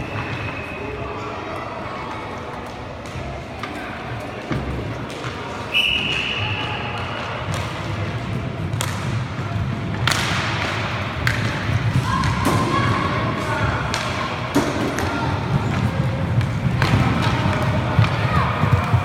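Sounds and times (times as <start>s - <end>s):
low rink rumble: 7.2s - 19.0s
hockey sticks and puck knocking: 7.5s - 19.0s.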